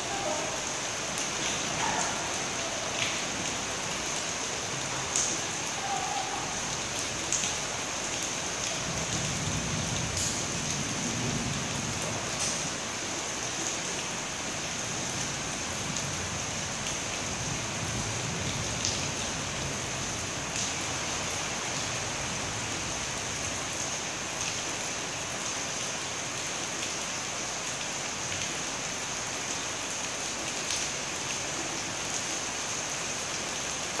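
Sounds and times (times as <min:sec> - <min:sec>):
steady rain: 0:00.0 - 0:34.0
raindrops tapping close by: 0:00.1 - 0:14.1.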